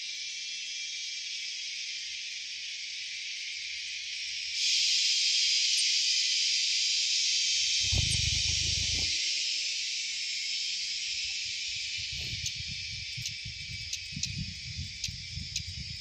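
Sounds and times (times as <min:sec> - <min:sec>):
insects buzzing: 0:00.0 - 0:16.0
low rumble or bump: 0:07.8 - 0:09.1.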